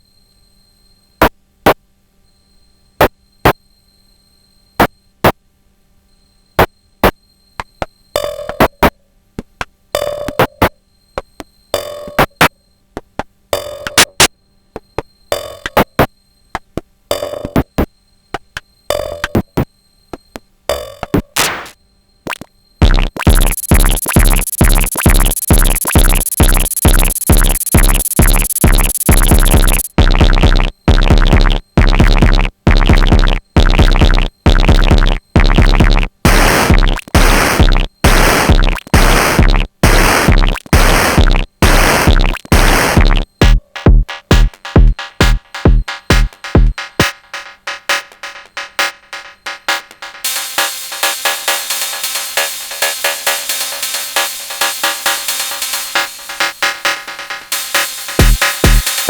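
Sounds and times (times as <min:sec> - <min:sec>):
kick drum: 0:22.8 - 0:47.2, 0:58.2 - 0:59.0
percussion hits: 0:22.8 - 0:59.0.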